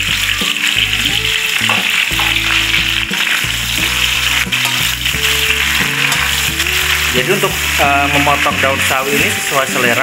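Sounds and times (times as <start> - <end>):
background music with held notes: 0.0 - 10.0
greens sizzling in a wok: 0.0 - 10.0
metal spatula stirring: 1.6 - 10.0.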